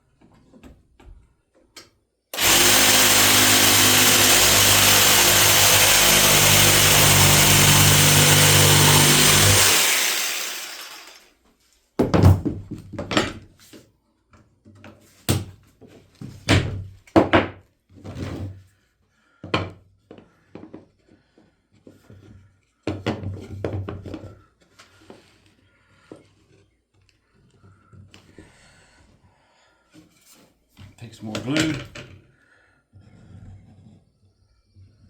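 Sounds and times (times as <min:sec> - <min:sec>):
power tool winding down: 0:02.4 - 0:11.3.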